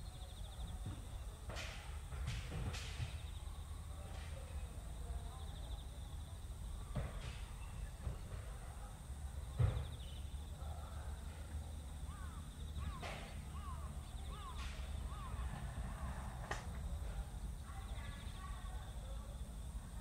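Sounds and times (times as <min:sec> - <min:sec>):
bird calling: 0:12.1 - 0:16.3.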